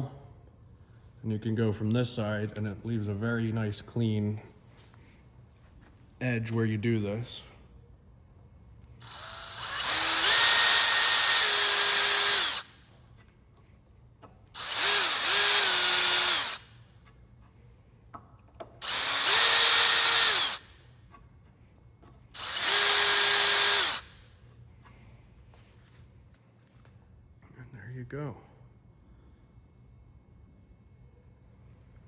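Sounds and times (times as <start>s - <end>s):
rotary tool high-pitched whine: 9.0s - 13.0s, 14.5s - 17.2s, 18.8s - 20.8s, 22.3s - 24.3s.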